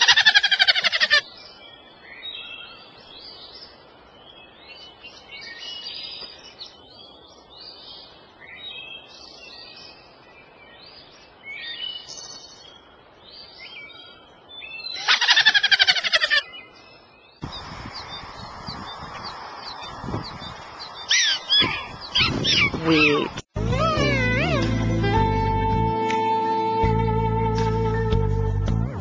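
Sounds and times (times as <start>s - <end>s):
small birds chirping and twittering: 0.0s - 23.5s
steady outdoor hiss: 0.0s - 29.0s.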